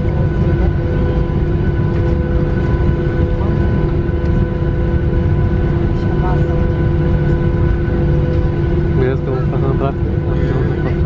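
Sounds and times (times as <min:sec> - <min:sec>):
airliner cabin rumble: 0:00.0 - 0:11.0
constant whining tones: 0:00.0 - 0:11.0.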